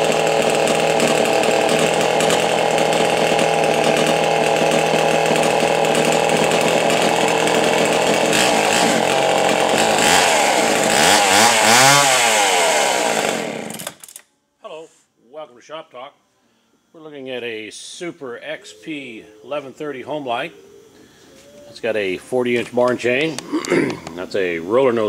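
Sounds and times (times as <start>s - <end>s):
chainsaw running and revving: 0.0s - 14.0s.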